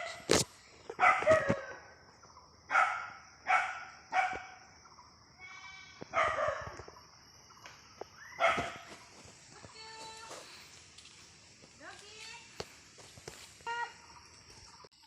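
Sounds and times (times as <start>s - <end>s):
dog barking: 1.0s - 1.8s, 2.7s - 4.6s, 6.1s - 6.8s, 8.4s - 8.9s.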